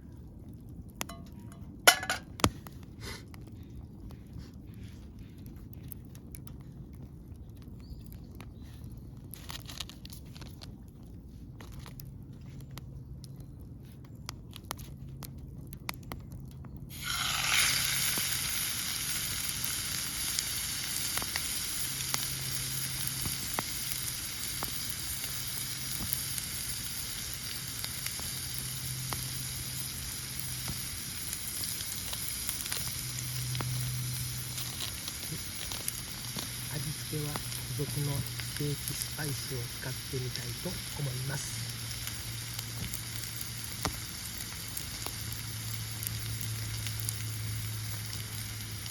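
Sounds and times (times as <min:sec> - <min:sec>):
fire crackling: 0:00.0 - 0:48.9
steak sizzling: 0:01.9 - 0:02.5, 0:16.9 - 0:48.9.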